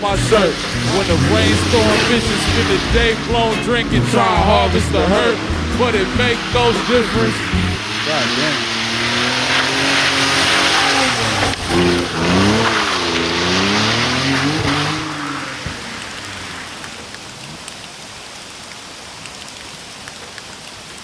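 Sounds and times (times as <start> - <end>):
water drops ticking: 0.0 - 8.8
car engine revving: 0.0 - 17.0
rain pattering: 0.0 - 21.0.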